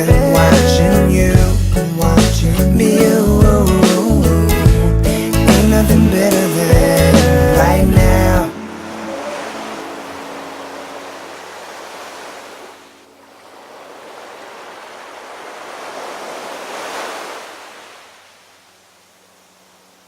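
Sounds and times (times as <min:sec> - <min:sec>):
ocean waves washing in: 0:06.1 - 0:20.0.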